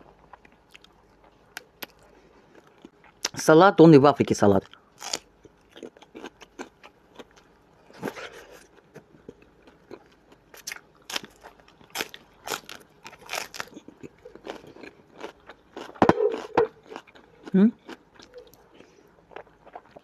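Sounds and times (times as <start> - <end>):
crunching raw vegetables: 4.6 - 20.0.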